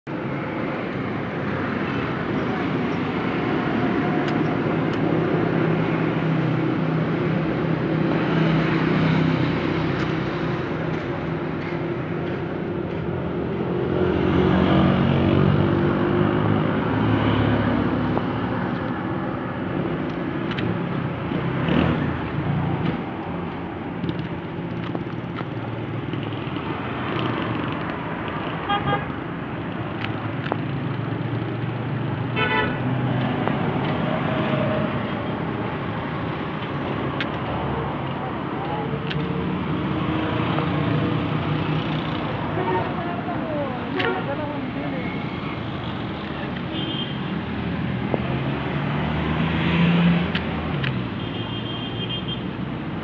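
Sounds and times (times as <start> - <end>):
vehicle engines passing: 0.1 - 53.0
car horns honking: 28.6 - 29.2, 32.3 - 32.9, 43.9 - 44.4, 51.1 - 52.5.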